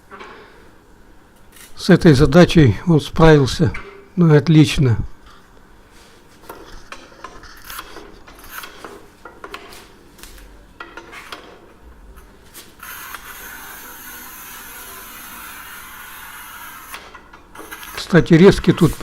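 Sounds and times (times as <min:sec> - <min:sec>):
tile cutter scraping: 0:06.5 - 0:09.0, 0:12.6 - 0:19.0.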